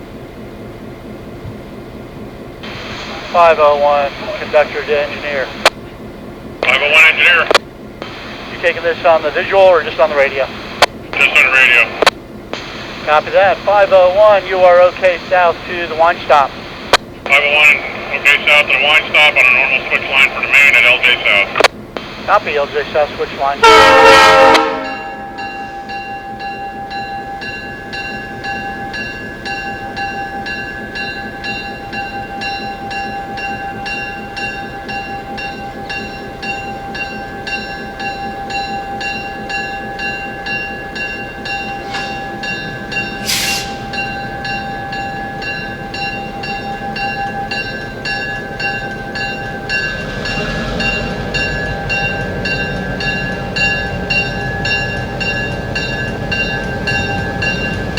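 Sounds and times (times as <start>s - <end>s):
train running on track: 0.0s - 57.9s
high hiss: 41.8s - 44.0s.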